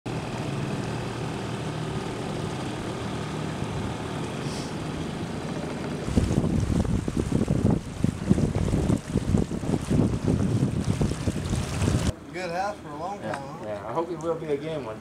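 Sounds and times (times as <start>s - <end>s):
engine drone: 0.1s - 12.1s
wind buffeting microphone: 5.5s - 12.1s.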